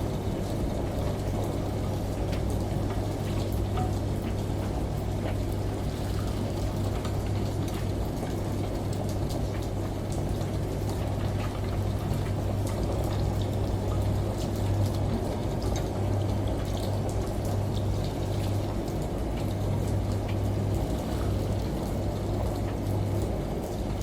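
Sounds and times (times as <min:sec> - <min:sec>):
light drips and ticks: 0:00.0 - 0:24.0
washing machine hum: 0:00.0 - 0:24.0
rushing water: 0:00.2 - 0:24.0.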